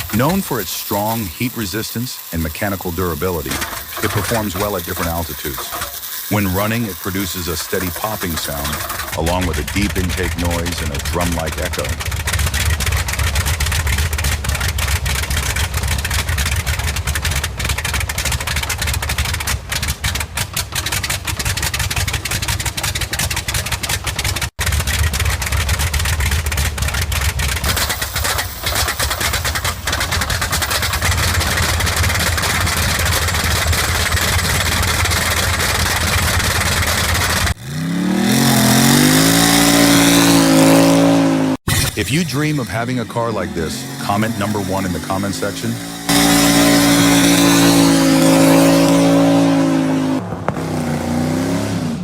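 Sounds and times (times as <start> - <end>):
aircraft engine running: 0.0 - 52.0
engine revving with rising pitch: 0.1 - 17.2, 37.2 - 52.0.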